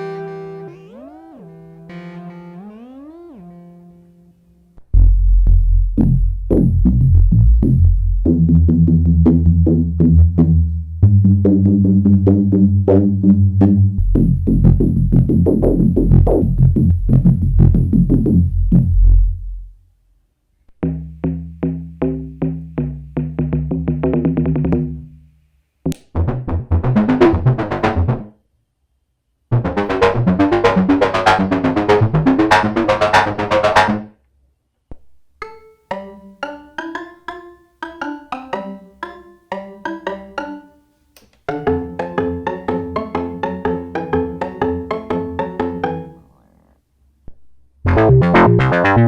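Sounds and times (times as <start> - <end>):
synthesizer pulsing bass and notes: 0.0 - 4.4, 29.5 - 34.1, 41.5 - 46.8, 47.9 - 49.0.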